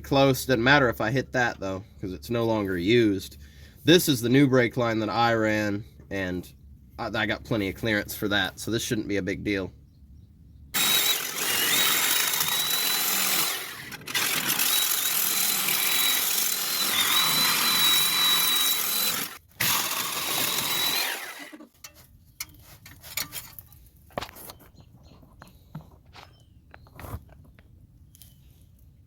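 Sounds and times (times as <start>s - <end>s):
power tool cutting steel pipe: 10.8s - 22.0s.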